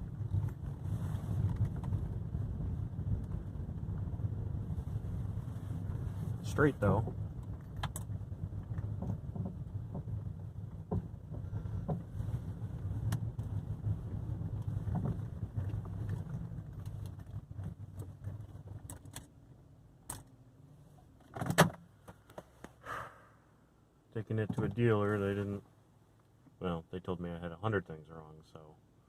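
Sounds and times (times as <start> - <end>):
road rumble inside car: 0.0 - 29.0
clunks and rattles over bumps: 6.8 - 19.4, 21.0 - 22.6, 24.4 - 25.1.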